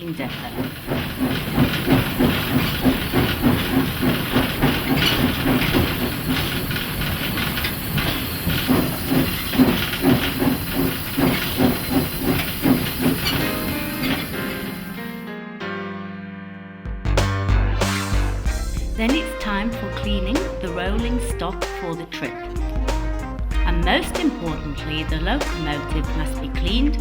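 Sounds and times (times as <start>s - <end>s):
steam hissing: 0.0s - 15.2s
steam locomotive chuffing: 0.0s - 15.2s, 18.1s - 27.0s.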